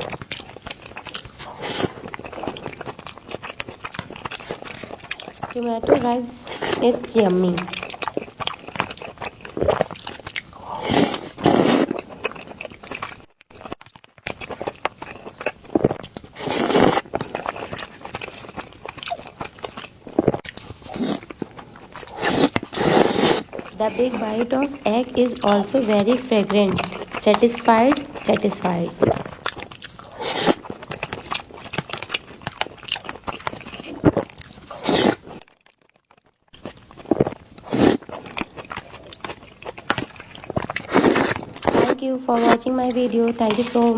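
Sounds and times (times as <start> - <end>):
chewing: 0.0 - 35.4, 36.6 - 43.9
wet mouth clicks: 4.0 - 8.1, 16.4 - 17.0.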